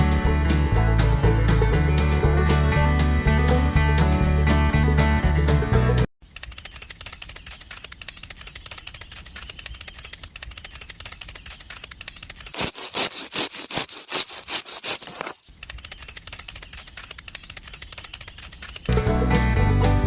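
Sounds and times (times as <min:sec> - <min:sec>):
chaff cutter clicking: 0:06.3 - 0:18.9
scraping strokes: 0:06.4 - 0:18.9.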